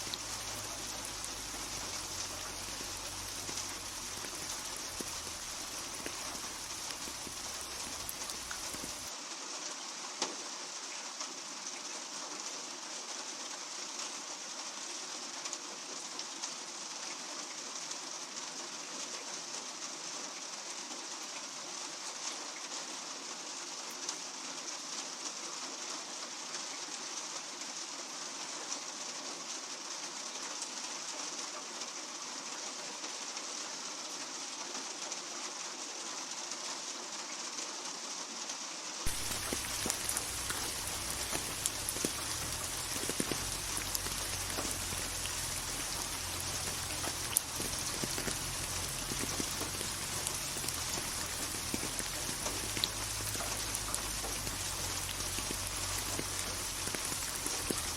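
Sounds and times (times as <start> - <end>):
raindrop ticks: 0.0 - 9.1, 39.1 - 57.9
rain hissing on surfaces: 0.0 - 57.9.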